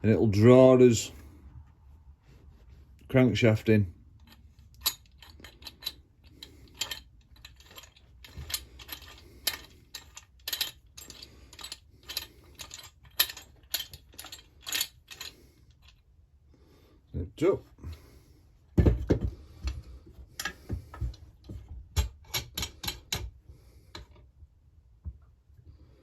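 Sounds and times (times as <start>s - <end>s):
metallic clicks of nut on threaded rod: 22.0s - 23.3s.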